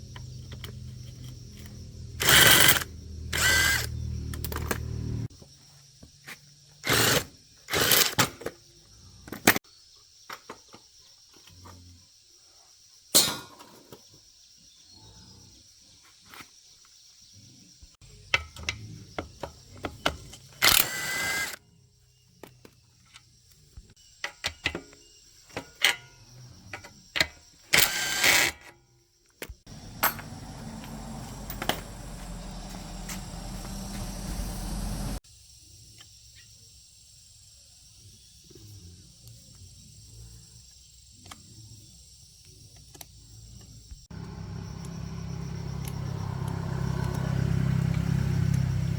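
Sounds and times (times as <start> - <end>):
metal tools clinking: 29.8 - 33.2.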